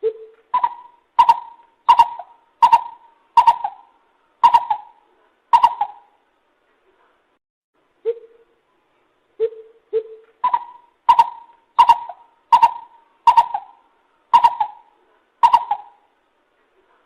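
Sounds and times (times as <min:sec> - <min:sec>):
bird calling: 0:00.0 - 0:06.2, 0:09.4 - 0:16.1.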